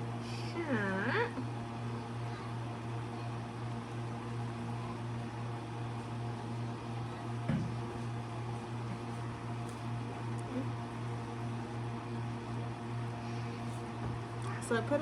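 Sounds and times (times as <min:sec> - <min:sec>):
appliance motor humming: 0:00.0 - 0:15.0.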